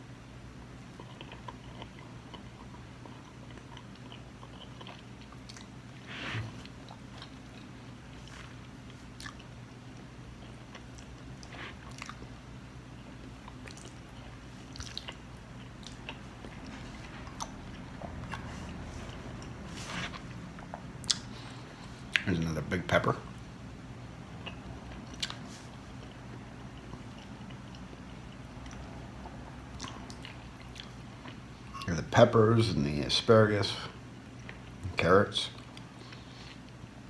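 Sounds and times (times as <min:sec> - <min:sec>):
chewing with wet mouth clicks: 0:00.9 - 0:06.0, 0:06.7 - 0:12.3, 0:13.3 - 0:18.8, 0:20.5 - 0:21.4, 0:24.4 - 0:31.5.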